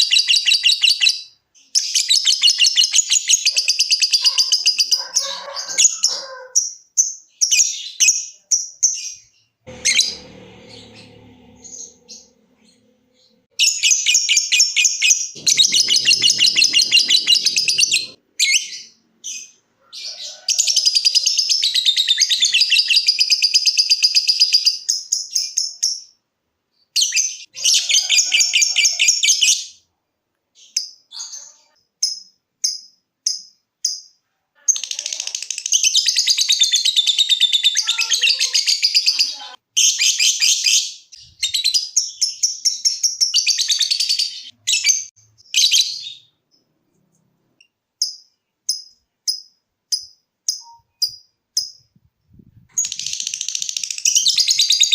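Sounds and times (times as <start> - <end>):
bird chirps: 0.0 - 26.0, 47.6 - 52.0
bird trilling: 15.4 - 19.0.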